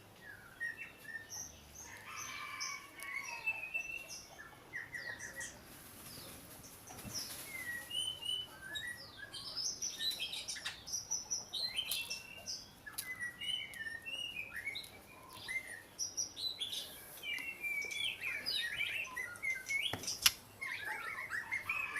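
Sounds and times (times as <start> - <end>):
bird singing whistled phrases: 11.8 - 15.9
sharp click: 19.9 - 20.4.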